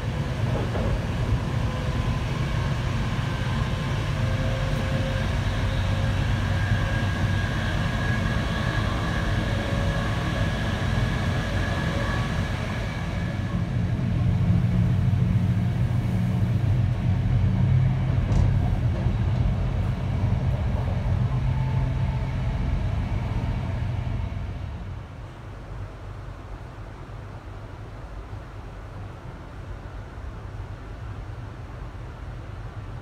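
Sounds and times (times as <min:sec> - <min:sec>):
train rumble inside carriage: 0:00.0 - 0:33.0.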